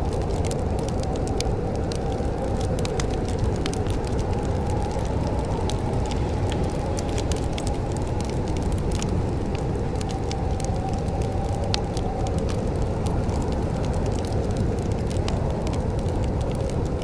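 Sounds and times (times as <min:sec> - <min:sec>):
sharp pops and snaps: 0:00.0 - 0:17.0
wood fire crackling: 0:00.0 - 0:17.0.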